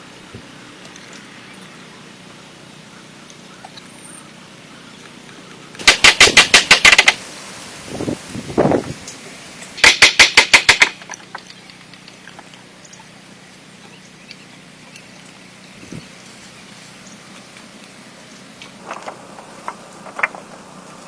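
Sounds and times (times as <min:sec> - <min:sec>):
rapid sharp knocks: 0:05.8 - 0:07.2, 0:09.8 - 0:11.4.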